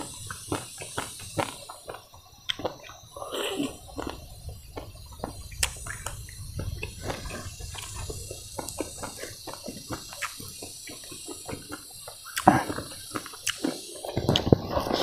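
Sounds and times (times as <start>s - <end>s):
person chewing food: 0.0s - 15.0s
low steady rumble: 3.9s - 9.4s.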